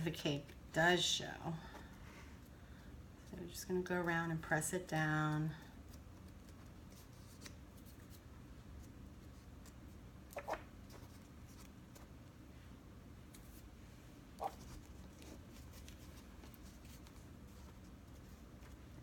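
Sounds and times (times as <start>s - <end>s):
rustling of cardstock: 5.7s - 12.2s, 14.4s - 19.0s.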